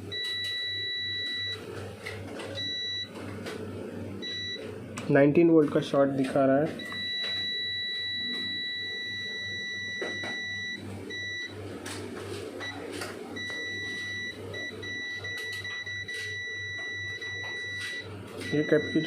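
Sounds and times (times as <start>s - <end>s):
multimeter buzzer high beep: 0.0s - 1.6s, 2.6s - 3.1s, 4.2s - 4.7s, 6.8s - 11.6s, 13.4s - 19.0s.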